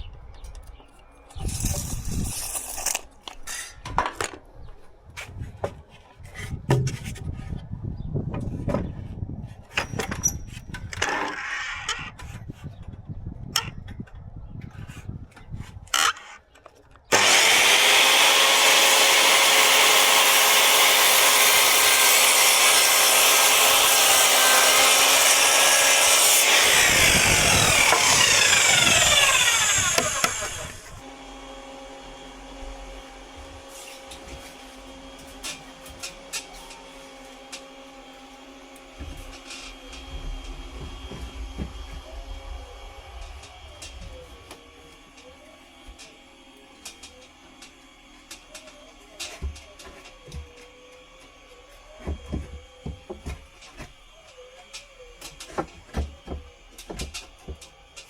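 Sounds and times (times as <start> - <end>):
wooden panels knocking and scraping: 5.6 - 7.5, 39.0 - 42.2
electric power saw cutting wood: 17.1 - 58.0.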